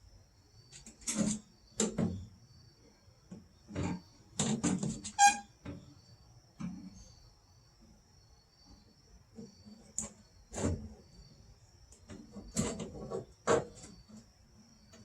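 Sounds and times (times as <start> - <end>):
crickets chirping: 0.0 - 15.0
short ringing squeak: 5.1 - 5.5.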